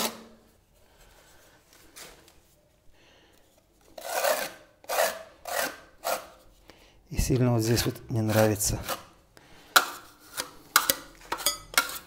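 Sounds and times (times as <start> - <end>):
plastering trowel scraping plaster: 3.8 - 6.5, 7.2 - 12.0.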